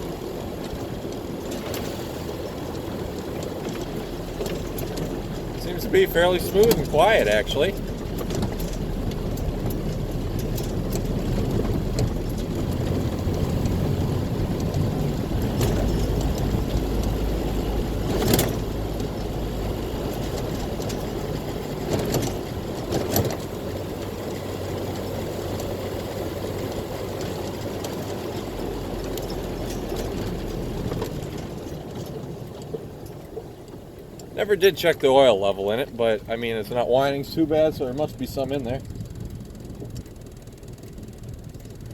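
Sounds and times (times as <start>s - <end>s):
car engine rumbling: 0.0s - 41.9s
short knocks and rattles: 2.7s - 34.4s.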